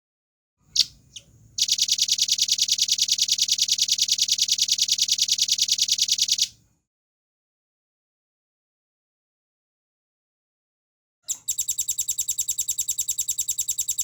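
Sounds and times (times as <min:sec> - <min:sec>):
bird fast trill: 0:00.7 - 0:06.5, 0:11.3 - 0:14.0.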